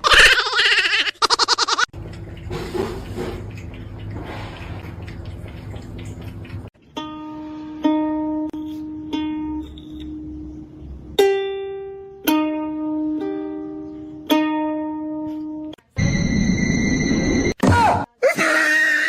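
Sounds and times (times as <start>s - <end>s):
plucked ukulele melody: 6.8s - 15.8s
loud high-pitched tone: 15.9s - 17.6s.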